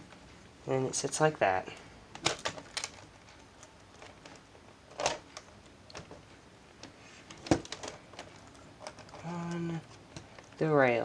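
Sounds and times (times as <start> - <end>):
plastic laptop parts clicking: 7.3 - 10.6.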